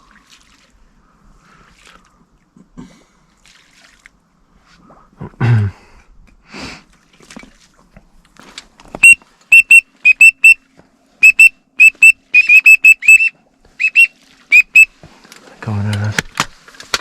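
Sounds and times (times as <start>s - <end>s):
duck whistle call: 9.0s - 10.6s, 11.2s - 14.9s.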